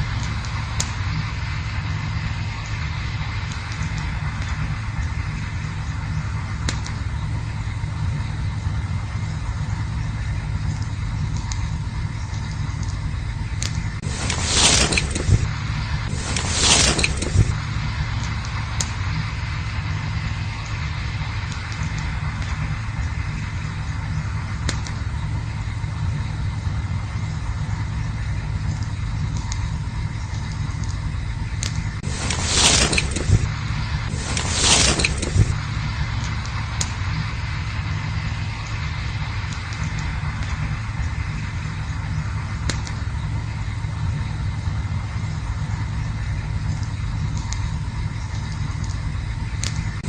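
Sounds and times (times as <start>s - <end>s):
campfire burning: 0.0s - 50.0s
fire crackles: 0.0s - 50.0s
rushing hiss: 16.1s - 17.6s, 32.0s - 36.0s.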